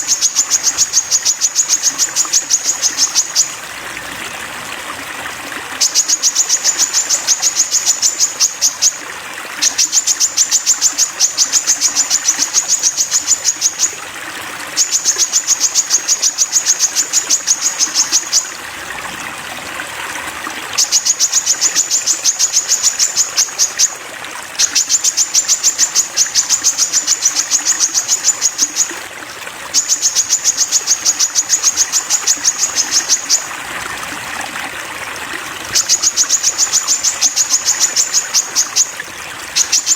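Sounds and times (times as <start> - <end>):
jay rattling call: 0.0 - 3.6, 9.6 - 14.0, 14.8 - 18.6, 20.8 - 24.0, 24.6 - 29.0, 29.7 - 33.6, 35.7 - 39.9
water trickling: 0.0 - 39.9.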